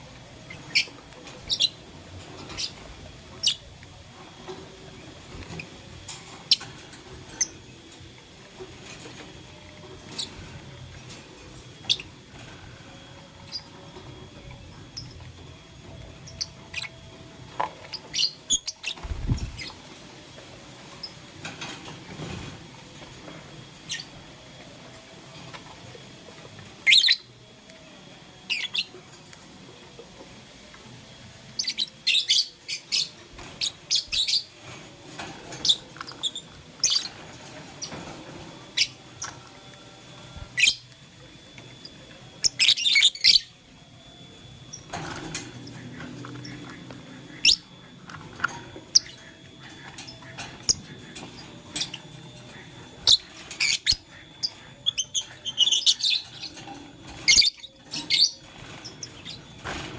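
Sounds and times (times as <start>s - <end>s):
lovebirds chirping: 45.6s - 59.8s.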